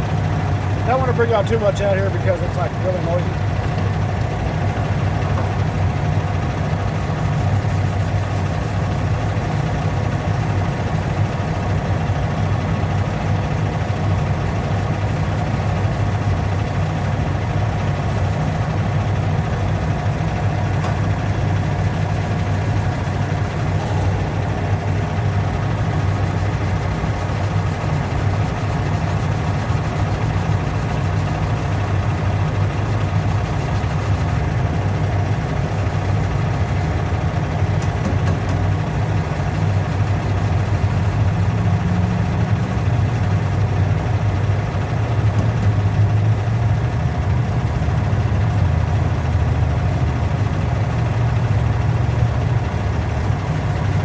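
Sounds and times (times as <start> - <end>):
machine humming: 20.2 - 31.7.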